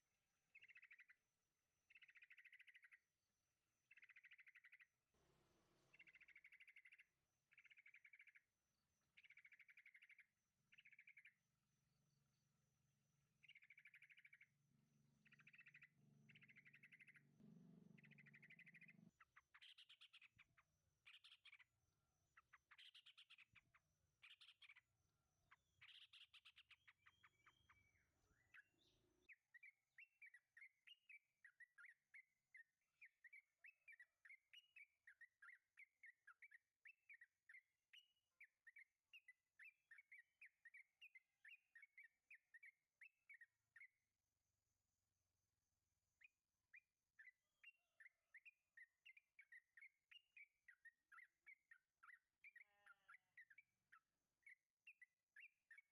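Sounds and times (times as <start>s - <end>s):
bird chattering and chirping: 15.2s - 21.6s.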